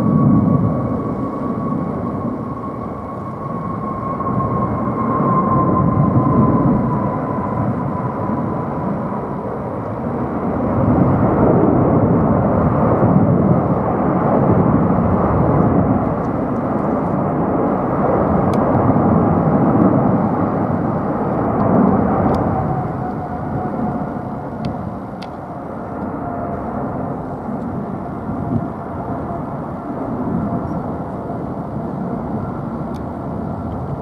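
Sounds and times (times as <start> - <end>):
faint jet whine: 0.0 - 34.0
jet engine roar: 0.0 - 34.0.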